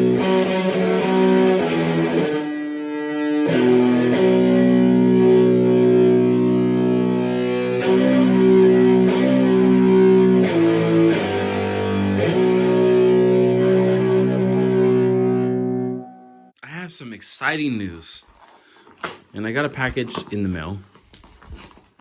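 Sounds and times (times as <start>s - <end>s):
distorted electric guitar chords: 0.0s - 16.5s.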